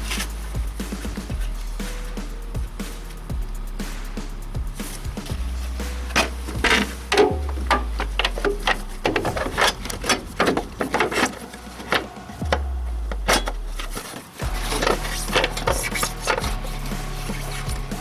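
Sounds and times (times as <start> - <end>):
low hum falling in pitch: 0.5 - 15.7
hand tools on metal: 6.0 - 18.0.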